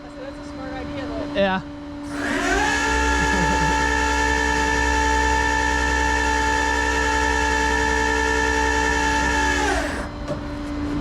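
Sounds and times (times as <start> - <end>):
tow truck motor whining: 2.0 - 10.2.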